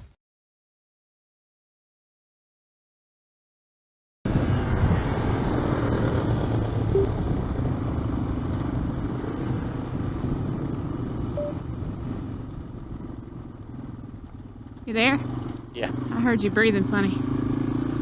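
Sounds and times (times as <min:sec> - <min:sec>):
motorcycle engine running: 0:04.3 - 0:18.0.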